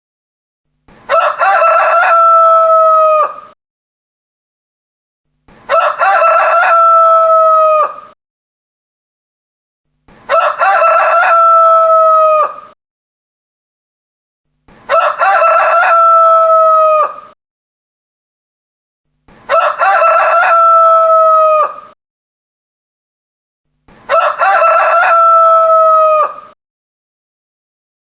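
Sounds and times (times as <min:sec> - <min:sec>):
rooster crowing: 0:01.1 - 0:03.6, 0:05.7 - 0:08.2, 0:10.3 - 0:12.8, 0:14.9 - 0:17.4, 0:19.5 - 0:22.0, 0:24.1 - 0:26.6.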